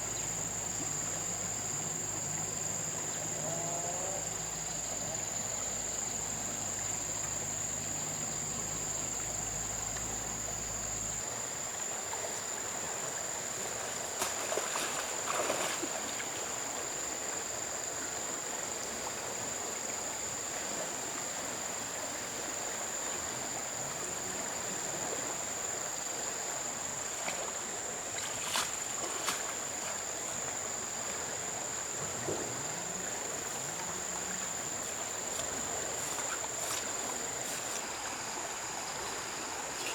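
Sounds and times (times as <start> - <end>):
flowing river water: 0.0 - 39.9
short knocks or splashes: 14.1 - 16.2, 32.0 - 32.8.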